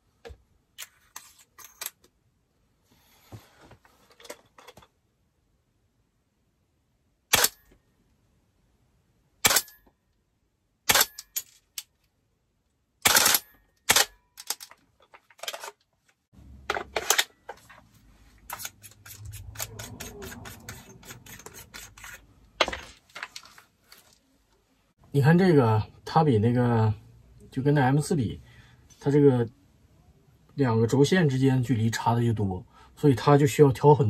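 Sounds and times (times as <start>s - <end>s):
airsoft rifle shots: 7.3s - 7.6s, 9.4s - 9.8s, 10.9s - 11.2s, 13.0s - 14.2s
handling noise: 16.4s - 21.6s.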